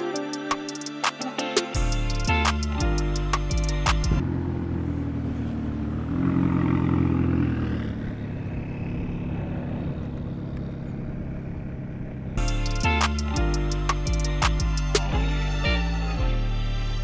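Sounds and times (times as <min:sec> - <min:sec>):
car engine revving: 0:02.0 - 0:16.2.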